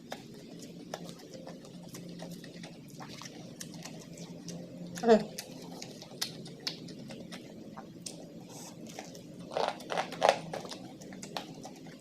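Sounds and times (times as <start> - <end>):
wet smacking clicks: 0.0 - 8.2
person chewing and biting food: 0.0 - 12.0.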